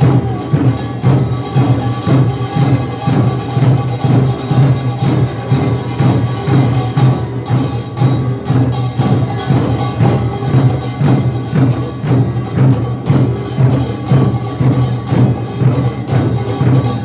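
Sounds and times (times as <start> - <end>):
percussion band playing: 0.0 - 17.0.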